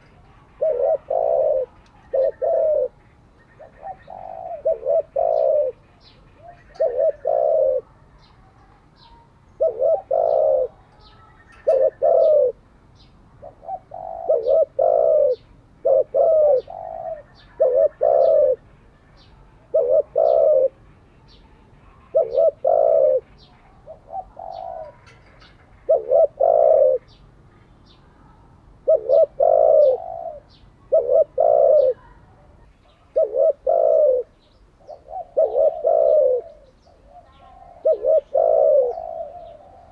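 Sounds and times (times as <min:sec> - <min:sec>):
dove cooing: 0:00.0 - 0:08.0, 0:09.0 - 0:12.6, 0:13.4 - 0:18.7, 0:19.6 - 0:20.8, 0:21.9 - 0:27.2, 0:28.8 - 0:32.2, 0:32.8 - 0:39.9
faint high bird chirps: 0:00.0 - 0:15.5, 0:16.5 - 0:39.9.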